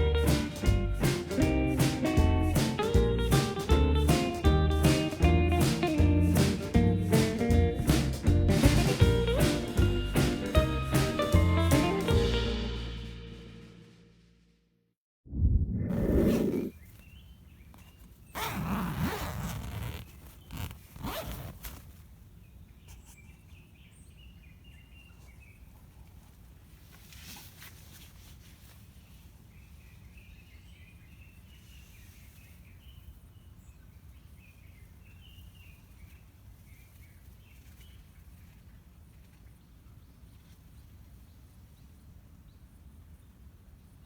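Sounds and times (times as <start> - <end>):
zipper rasping: 15.9 - 16.8, 18.3 - 21.8.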